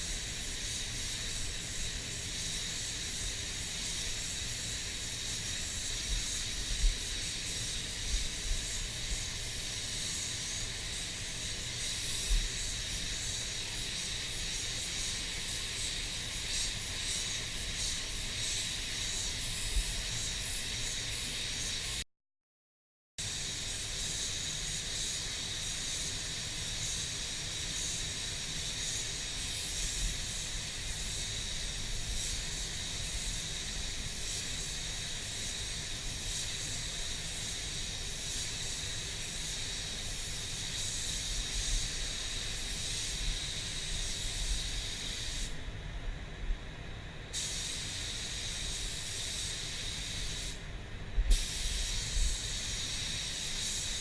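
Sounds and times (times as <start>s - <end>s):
compressed air hissing: 0.0s - 22.0s, 23.2s - 45.8s, 47.2s - 54.0s.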